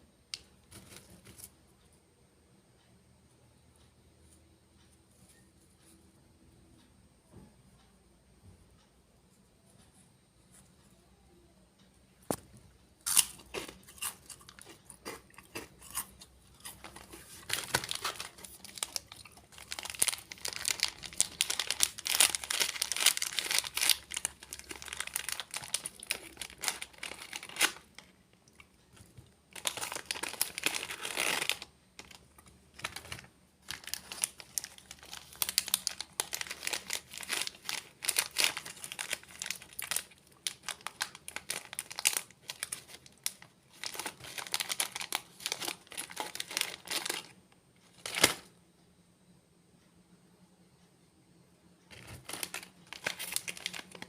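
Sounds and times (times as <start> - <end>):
crunching crisp snacks: 13.0 - 48.5, 51.9 - 54.0
plastic packets crinkling: 13.1 - 47.4, 48.0 - 48.5, 51.9 - 54.0.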